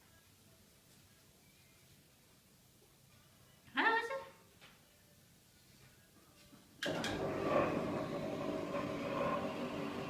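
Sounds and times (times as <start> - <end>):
lift motor whirring: 6.9 - 10.0.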